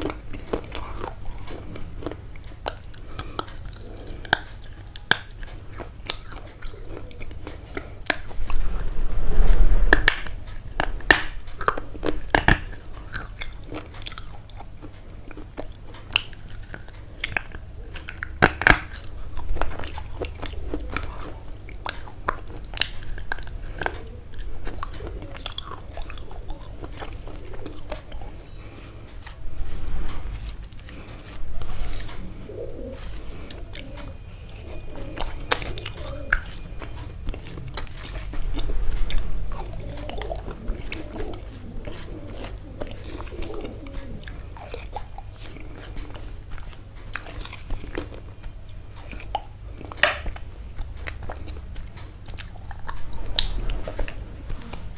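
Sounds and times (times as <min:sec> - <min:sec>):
crunchy biting and chewing: 0:00.0 - 0:54.9.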